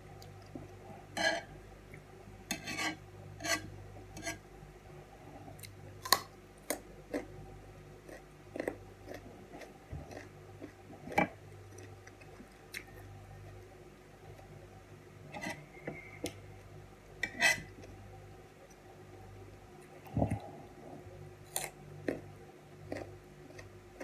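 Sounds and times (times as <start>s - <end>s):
knife scraping soft cheese: 2.5s - 4.4s, 15.3s - 15.8s, 17.2s - 17.7s
carrot being bitten and chewed: 8.0s - 10.8s, 21.4s - 24.0s.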